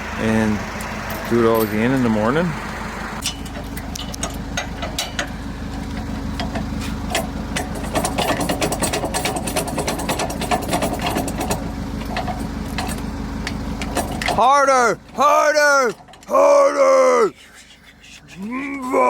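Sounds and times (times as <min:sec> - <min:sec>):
rapid clicking and rattling: 0:03.2 - 0:16.4.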